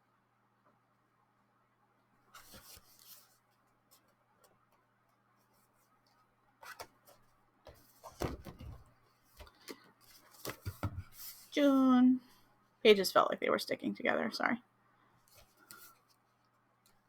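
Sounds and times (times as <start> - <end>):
calendar pages rustling: 2.3 - 4.1, 6.6 - 11.5.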